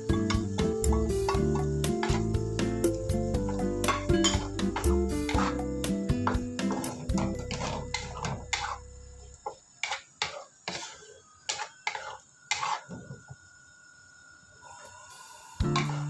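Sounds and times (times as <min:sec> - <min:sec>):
background music: 0:00.0 - 0:09.1, 0:15.6 - 0:16.0
utensil clinking on kitchenware: 0:03.8 - 0:05.6.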